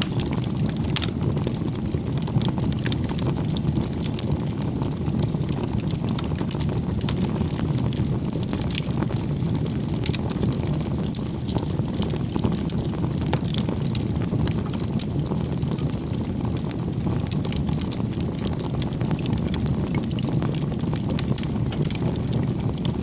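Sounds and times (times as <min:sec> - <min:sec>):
rush of flames: 0:00.0 - 0:23.0
wood crackling and popping: 0:00.0 - 0:23.0.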